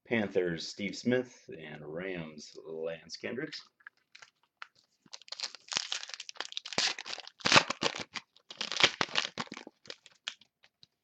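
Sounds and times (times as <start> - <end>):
foil wrapper crinkling and tearing: 4.0 - 10.5.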